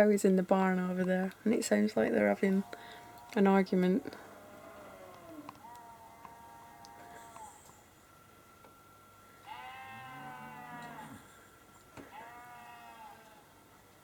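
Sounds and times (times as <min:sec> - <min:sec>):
deeper animal call: 0:04.0 - 0:07.7, 0:09.4 - 0:13.5
sheep bleating: 0:09.4 - 0:11.2, 0:12.0 - 0:13.5.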